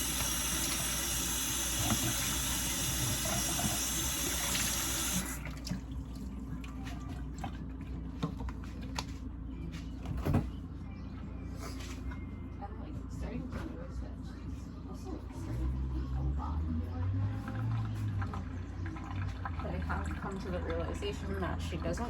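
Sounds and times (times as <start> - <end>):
water running into a cup: 0.0 - 6.4, 17.7 - 21.2.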